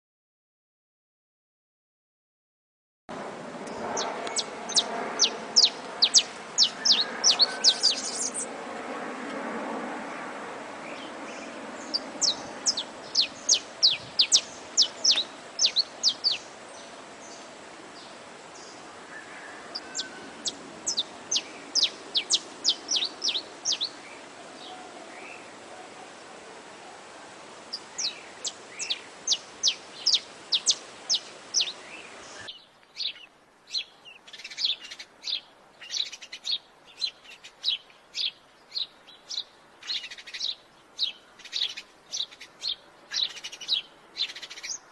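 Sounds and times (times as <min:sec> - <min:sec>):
songbird singing high notes: 0:04.0 - 0:08.5, 0:11.0 - 0:16.5, 0:19.1 - 0:24.2, 0:27.7 - 0:44.9.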